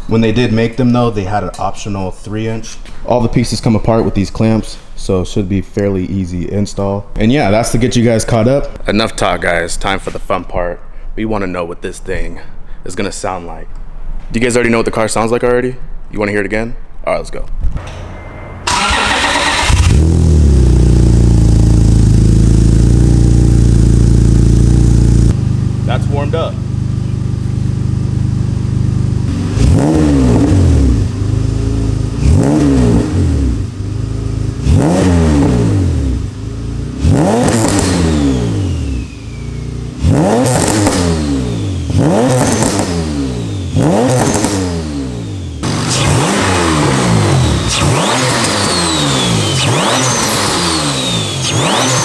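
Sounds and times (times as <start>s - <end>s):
car engine revving: 18.6s - 52.0s.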